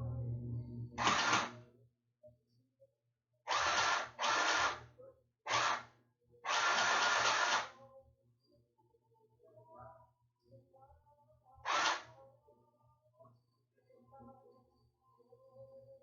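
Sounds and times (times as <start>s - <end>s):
sewing machine running: 1.0s - 1.6s, 3.5s - 4.8s, 5.5s - 5.8s, 6.5s - 7.7s, 11.7s - 12.0s.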